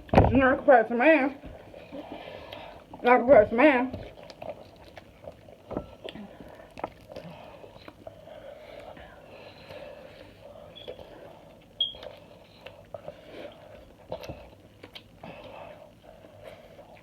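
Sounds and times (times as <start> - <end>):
chewing: 3.9 - 17.0.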